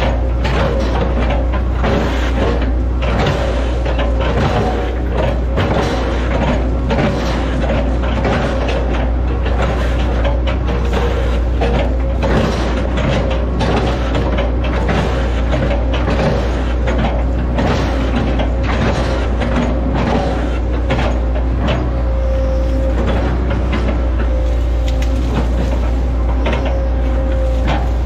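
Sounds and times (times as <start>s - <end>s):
knocks and clanks on wood: 0.0s - 22.2s
excavator diesel engine: 0.0s - 28.0s
hydraulic whine: 0.0s - 28.0s.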